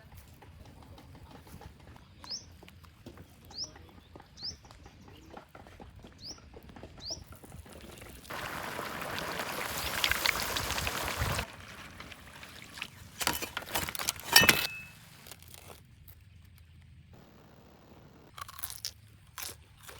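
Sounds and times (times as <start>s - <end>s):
liquid pouring: 7.8s - 14.5s.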